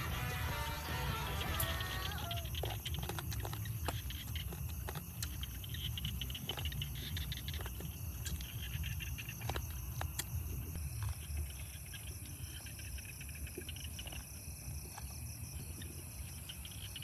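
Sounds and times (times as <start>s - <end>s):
night insects chirring: 0.0s - 17.0s
chewing crunches and lip smacks: 1.5s - 12.4s, 13.4s - 16.0s.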